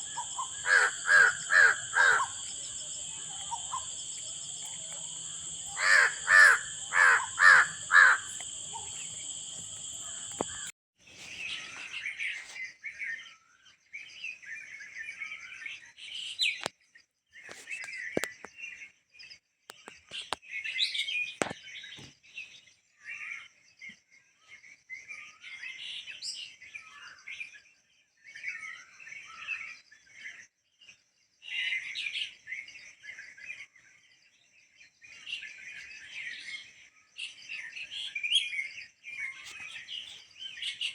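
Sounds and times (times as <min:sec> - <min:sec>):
crow cawing: 0:00.0 - 0:04.0, 0:04.6 - 0:10.7
songbirds chirping and twittering: 0:00.0 - 0:40.9.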